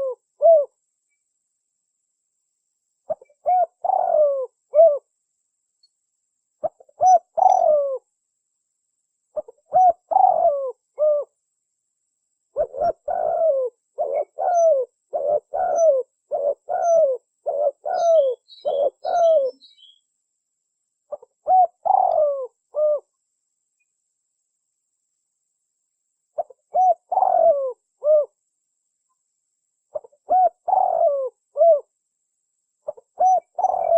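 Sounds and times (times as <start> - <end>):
dove cooing: 0.0 - 0.8, 3.1 - 5.1, 6.6 - 8.1, 9.4 - 11.3, 12.6 - 20.0, 21.1 - 23.1, 26.4 - 28.4, 29.9 - 31.9, 32.8 - 33.9
small bird high chirps: 6.6 - 8.0, 12.6 - 20.1, 32.8 - 33.9.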